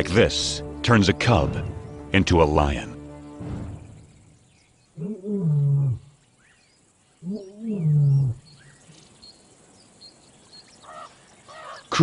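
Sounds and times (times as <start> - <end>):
lion roaring: 5.0 - 6.1, 7.2 - 8.4.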